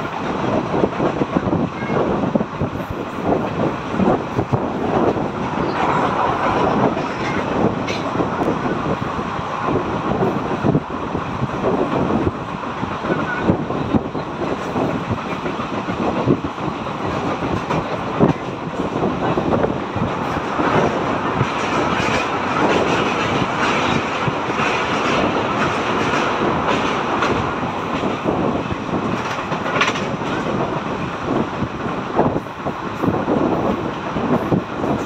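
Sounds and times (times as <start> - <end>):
train wheels clattering over joints: 11.4 - 35.0.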